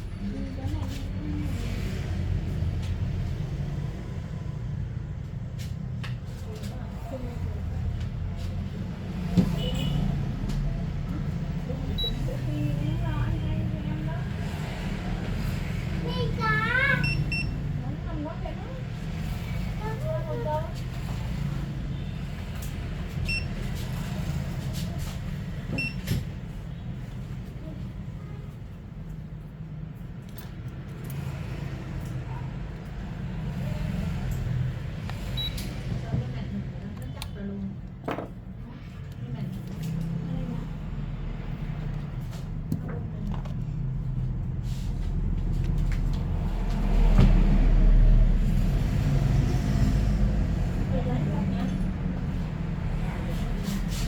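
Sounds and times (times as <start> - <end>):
low rumble of road traffic: 0.0 - 54.0
vehicle passing close by: 46.2 - 54.0.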